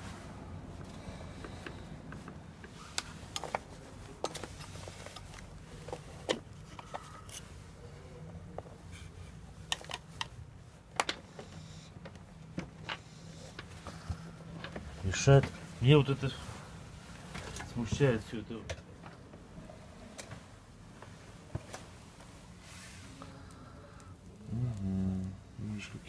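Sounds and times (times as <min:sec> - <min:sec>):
steady low hum: 0:00.0 - 0:26.0
clicks and knocks of parts: 0:09.6 - 0:15.6.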